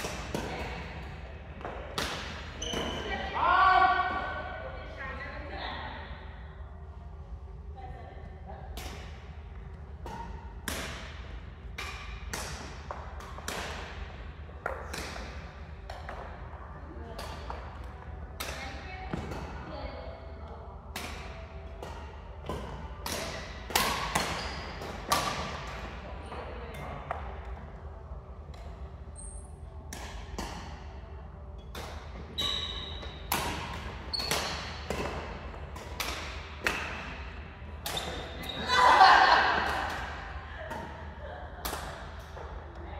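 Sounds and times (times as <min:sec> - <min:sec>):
rackets hitting shuttlecock: 0:00.0 - 0:03.1, 0:08.7 - 0:16.5, 0:17.2 - 0:19.7, 0:20.9 - 0:26.0, 0:29.8 - 0:30.9, 0:31.6 - 0:38.6, 0:39.4 - 0:42.6
shoe squeaks: 0:02.6 - 0:03.2, 0:24.4 - 0:24.8, 0:29.1 - 0:29.6, 0:32.3 - 0:33.3, 0:34.0 - 0:34.8, 0:38.0 - 0:38.8.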